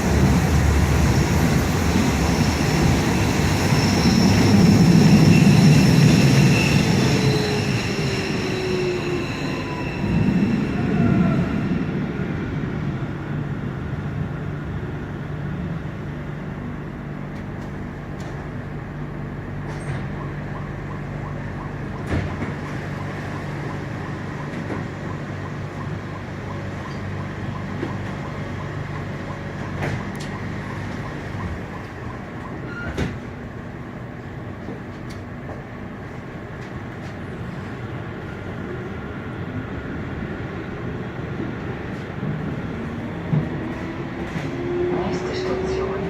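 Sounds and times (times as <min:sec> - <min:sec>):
train rolling on track: 0:00.0 - 0:46.0
train wheels knocking: 0:20.2 - 0:32.7.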